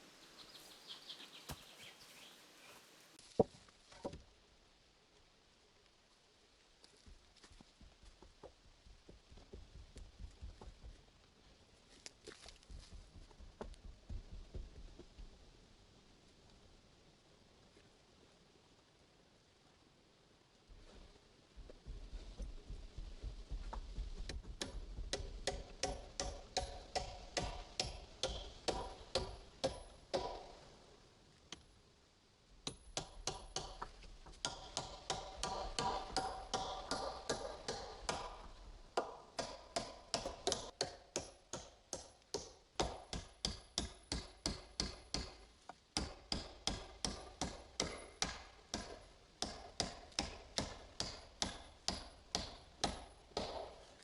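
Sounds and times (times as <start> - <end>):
hammer striking wood: 24.5 - 30.6, 32.6 - 38.4, 39.0 - 45.4, 46.0 - 53.8.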